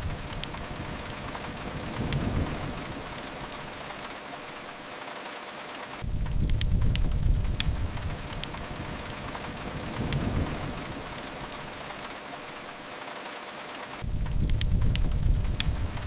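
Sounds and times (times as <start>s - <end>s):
steady rain: 0.0s - 16.0s
wood fire crackling: 0.0s - 16.0s
deep rumble: 6.0s - 11.5s, 14.0s - 16.0s.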